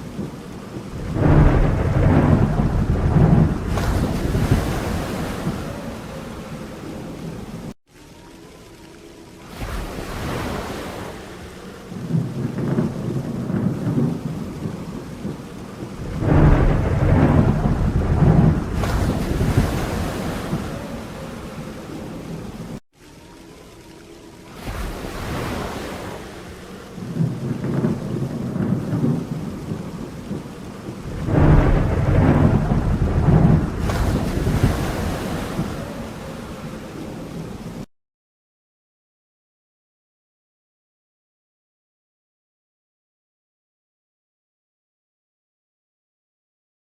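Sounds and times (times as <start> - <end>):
rolling thunder: 0.0 - 7.7, 11.9 - 22.8, 24.7 - 37.9
steady rain: 0.0 - 37.9.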